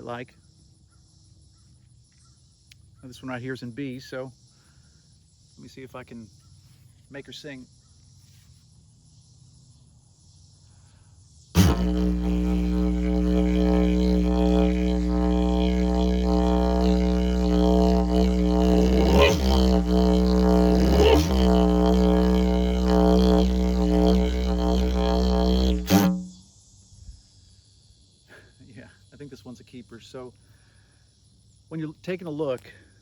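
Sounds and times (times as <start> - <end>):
didgeridoo low drone: 11.6 - 26.4.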